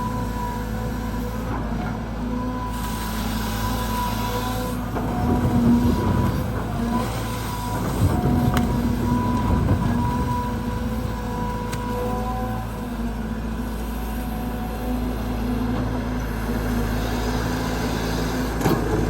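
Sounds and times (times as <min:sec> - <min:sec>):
excavator diesel engine working: 0:00.0 - 0:19.0
hydraulic pump whine: 0:00.0 - 0:19.0.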